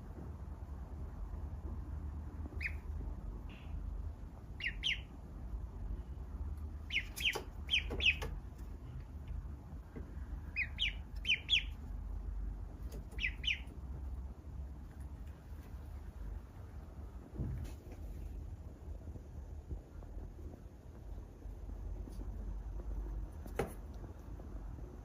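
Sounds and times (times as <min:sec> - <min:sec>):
duckling peeping: 0:02.4 - 0:05.5, 0:06.5 - 0:09.4, 0:10.0 - 0:14.2.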